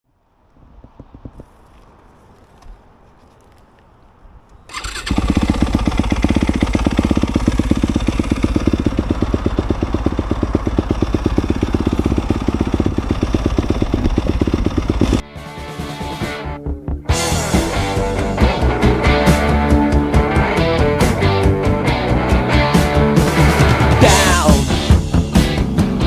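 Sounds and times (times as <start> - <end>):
dirt bike engine running: 4.7 - 15.2, 18.5 - 26.0.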